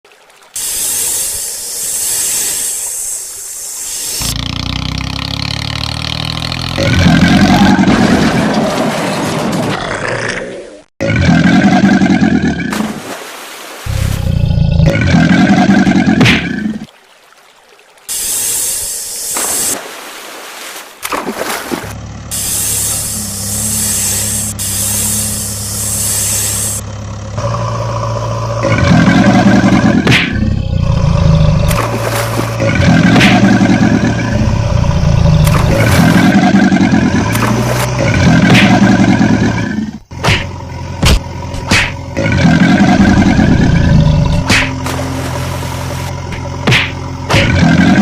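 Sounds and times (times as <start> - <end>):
loud hiss: 0.6 - 4.3, 18.1 - 19.8, 22.3 - 26.8
heavy vehicle engine humming: 21.9 - 47.3.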